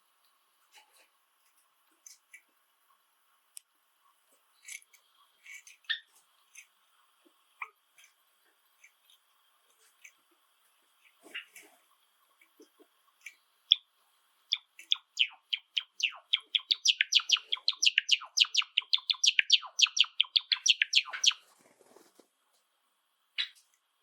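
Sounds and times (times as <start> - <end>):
sparrow chirping and singing: 14.5 - 21.4.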